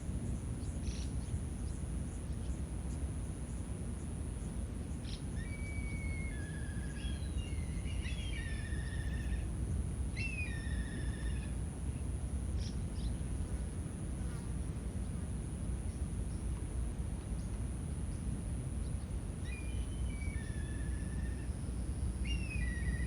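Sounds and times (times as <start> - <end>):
bird singing whistled notes: 5.1 - 9.4, 10.2 - 11.4, 19.4 - 21.6, 22.2 - 23.0.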